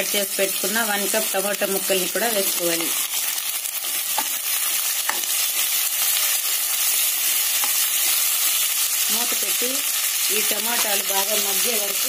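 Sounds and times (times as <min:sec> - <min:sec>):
vegetables sizzling in hot oil: 0:00.0 - 0:12.0
spatula stirring: 0:03.8 - 0:09.2, 0:09.9 - 0:12.0.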